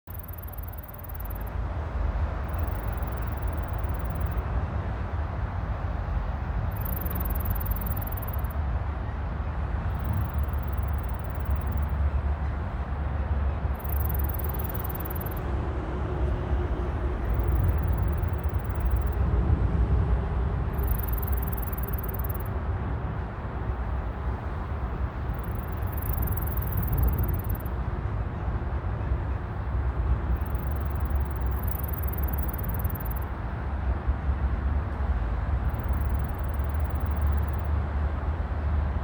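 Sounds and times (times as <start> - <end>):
insects chirring: 0.1 - 1.6, 2.4 - 4.4, 6.7 - 8.5, 9.9 - 12.0, 13.7 - 15.5, 17.2 - 19.2, 20.7 - 22.5, 25.2 - 27.7, 30.3 - 33.3, 35.6 - 37.7
steady low rumble: 0.1 - 39.0.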